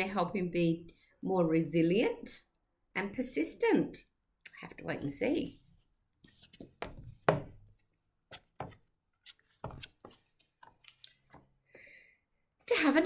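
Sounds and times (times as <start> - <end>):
book page turning taps: 8.3 - 11.5.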